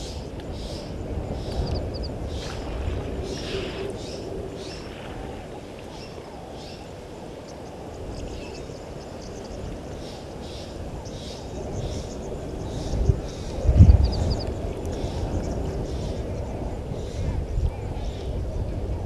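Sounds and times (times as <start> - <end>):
birds chirping: 5.9 - 18.2.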